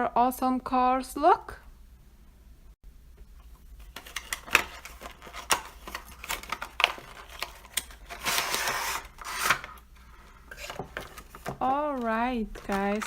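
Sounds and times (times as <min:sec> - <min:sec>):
packaging being torn open: 0:03.8 - 0:09.8.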